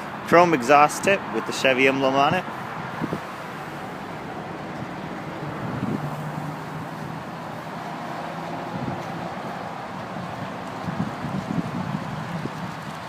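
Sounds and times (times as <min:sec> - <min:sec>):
low vehicle hum: 0:02.4 - 0:13.0
wind noise on microphone: 0:02.5 - 0:13.0.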